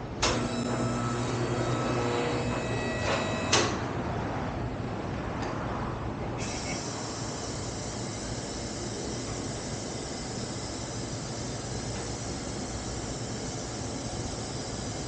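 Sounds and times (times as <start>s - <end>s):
exhaust hiss: 6.4s - 15.0s.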